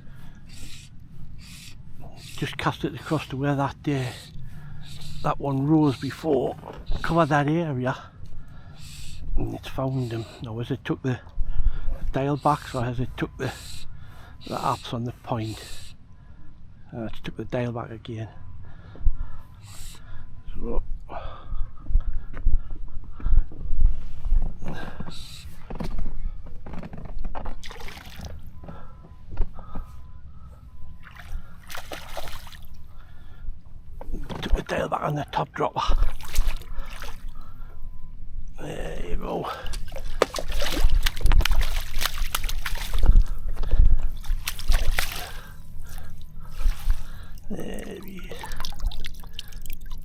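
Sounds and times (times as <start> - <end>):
water sloshing and splashing: 27.4 - 28.7, 31.0 - 32.9, 35.9 - 37.7, 39.5 - 50.0.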